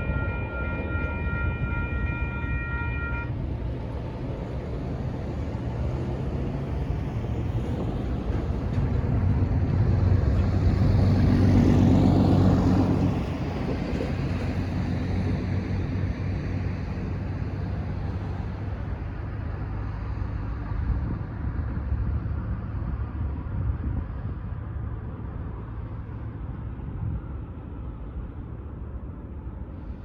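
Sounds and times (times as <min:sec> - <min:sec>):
freight train rumbling past: 0:00.0 - 0:21.6
diesel locomotive engine drone: 0:00.0 - 0:30.0.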